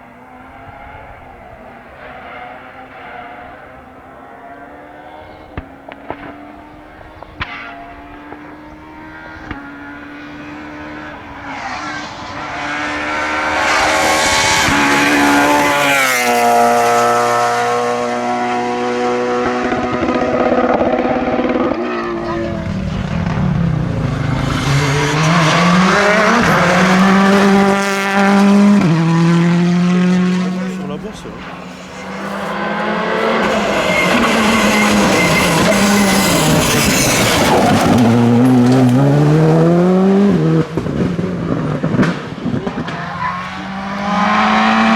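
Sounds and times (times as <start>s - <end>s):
rally car engine revving: 0.0s - 44.9s
tyre squeal: 30.6s - 39.0s.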